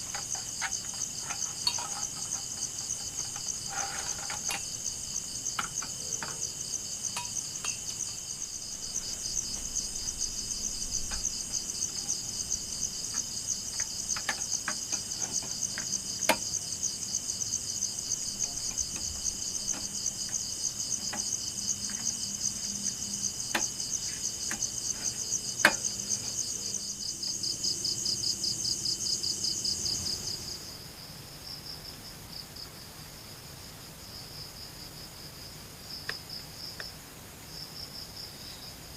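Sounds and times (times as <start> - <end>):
insect chorus trilling: 0.0 - 32.8
light clicks and knocks: 13.0 - 16.6, 21.0 - 22.2.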